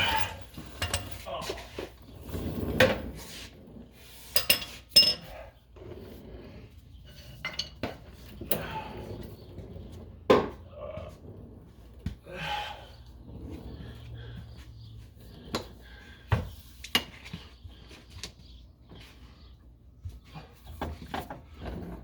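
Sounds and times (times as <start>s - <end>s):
metal tools clinking: 0.0s - 1.3s, 4.4s - 5.4s
scraping and shuffling: 0.0s - 22.0s.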